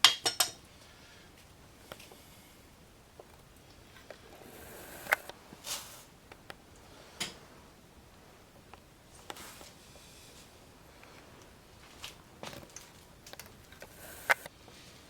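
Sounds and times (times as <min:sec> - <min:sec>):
clicks and taps of tools: 0:00.0 - 0:00.6.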